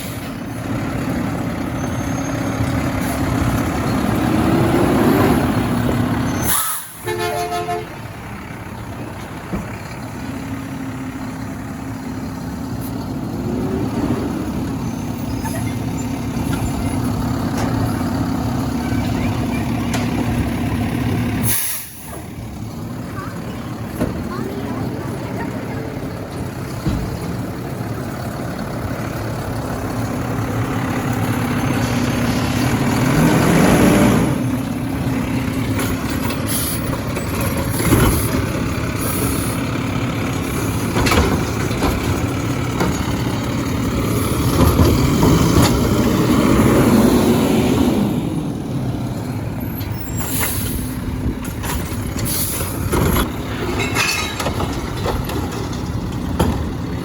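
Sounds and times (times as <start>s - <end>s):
truck engine revving: 0.0s - 57.0s
metallic knocks and clanks: 51.4s - 56.8s.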